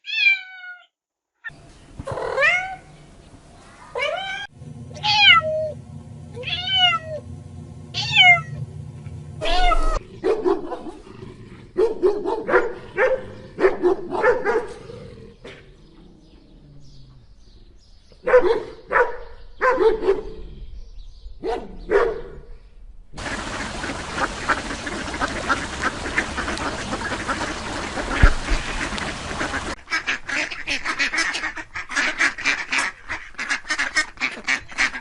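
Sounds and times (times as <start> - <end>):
cat meowing: 0.0 - 0.9, 2.2 - 2.9, 3.9 - 5.8, 6.4 - 7.2, 8.0 - 8.6, 9.4 - 10.0
dog barking: 10.2 - 11.0, 11.8 - 14.9, 18.2 - 20.4, 21.4 - 22.5.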